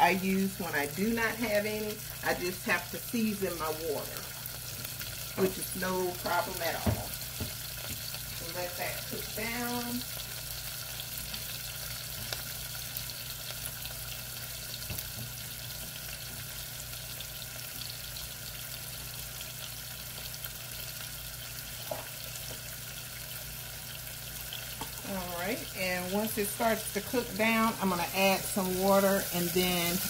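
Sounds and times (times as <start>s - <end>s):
vegetables sizzling in oil: 0.0s - 30.0s.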